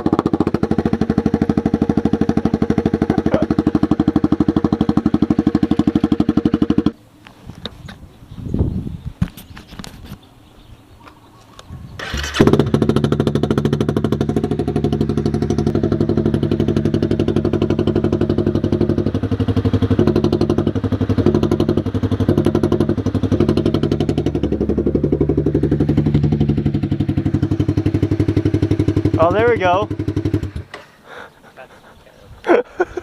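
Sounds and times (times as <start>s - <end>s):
motorcycle starting and idling: 0.0s - 7.0s, 11.9s - 31.3s.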